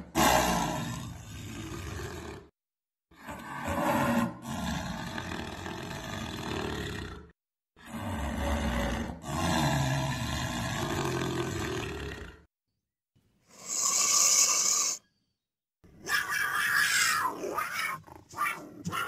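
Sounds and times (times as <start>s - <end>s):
jaguar roaring: 0.0s - 2.5s, 3.3s - 12.5s.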